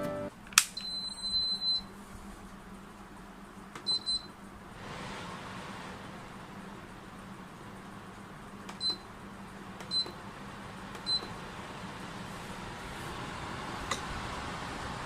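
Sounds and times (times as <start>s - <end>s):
control panel beeping: 0.0s - 1.9s, 3.8s - 4.3s, 8.7s - 9.1s, 9.8s - 10.2s, 11.0s - 11.3s
fan rushing: 1.9s - 15.0s.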